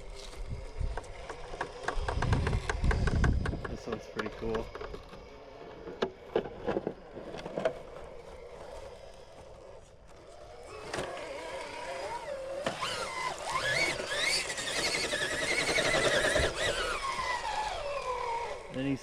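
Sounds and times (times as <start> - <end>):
electric motor whining: 0.0 - 19.0
toy truck knocking on rock: 1.3 - 4.7.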